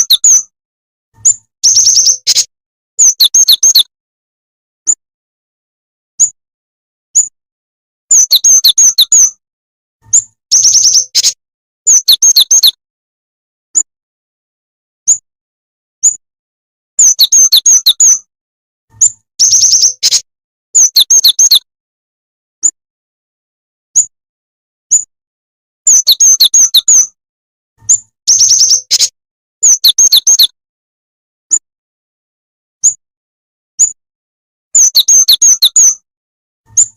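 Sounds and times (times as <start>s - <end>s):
bird high sharp chirps: 0.0s - 0.5s, 1.2s - 3.9s, 6.2s - 6.4s, 7.1s - 7.4s, 8.1s - 9.4s, 10.0s - 12.8s, 15.0s - 15.2s, 16.0s - 16.2s, 17.0s - 18.3s, 18.9s - 21.7s, 23.9s - 24.1s, 24.9s - 25.1s, 25.9s - 27.2s, 27.8s - 30.6s, 32.8s - 33.0s, 33.8s - 34.0s, 34.8s - 36.0s, 36.7s - 36.9s.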